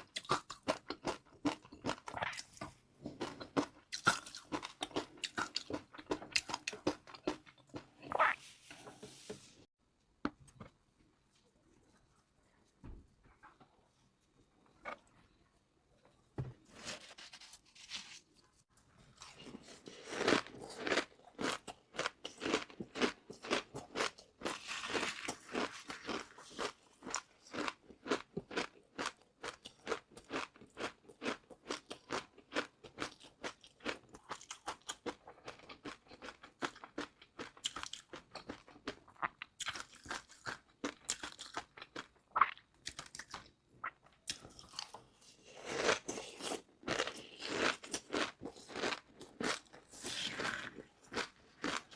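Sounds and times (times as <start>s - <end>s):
chewing crunchy food: 0.0s - 8.4s, 19.0s - 51.9s.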